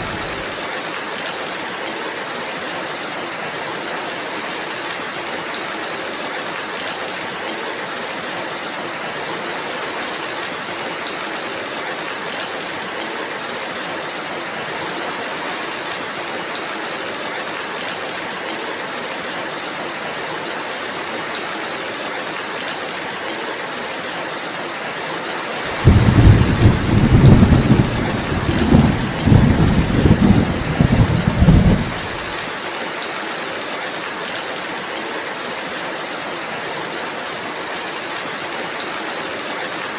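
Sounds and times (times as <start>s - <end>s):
thunder rolling: 0.0s - 0.4s, 25.7s - 32.4s
steady rain hissing: 0.0s - 39.9s.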